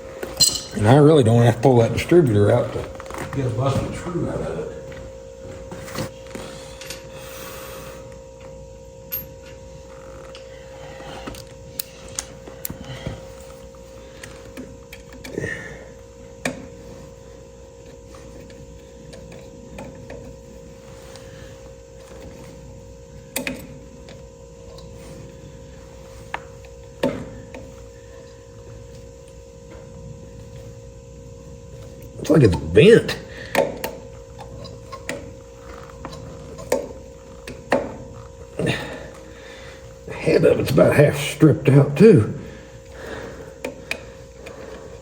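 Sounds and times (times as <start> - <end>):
steady hum: 0.0 - 45.0.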